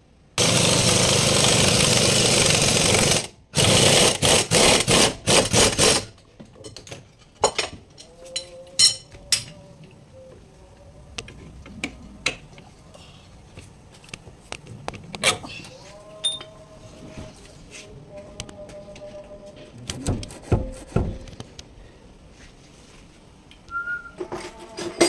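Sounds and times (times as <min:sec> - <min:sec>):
impact wrench bursts: 0:00.4 - 0:06.1
hand tools clinking: 0:06.6 - 0:09.6, 0:16.2 - 0:16.6.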